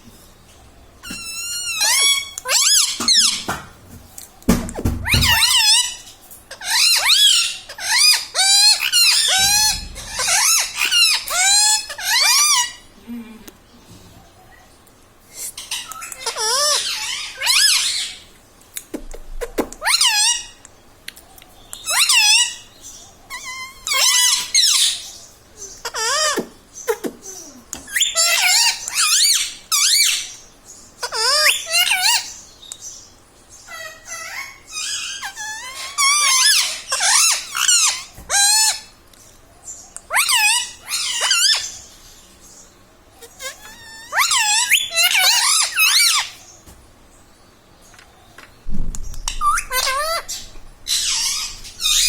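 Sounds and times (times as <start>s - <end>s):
parrot squeaky calls: 1.0s - 3.5s, 5.0s - 12.9s, 15.4s - 18.3s, 19.4s - 20.6s, 21.8s - 30.4s, 31.0s - 32.4s, 33.6s - 39.0s, 40.0s - 42.0s, 43.2s - 46.5s, 49.2s - 52.0s.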